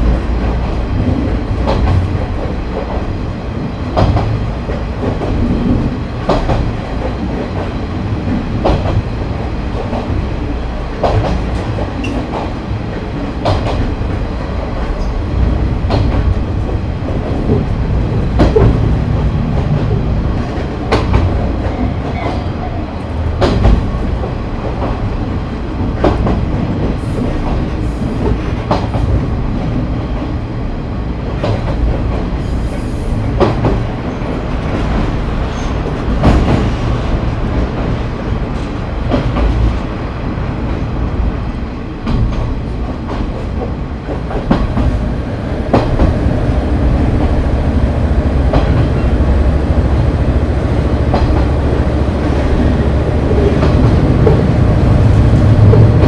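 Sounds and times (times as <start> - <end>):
railcar engine and wheels rumbling: 0.0 - 56.0
wheels clacking over rail joint: 51.0 - 56.0.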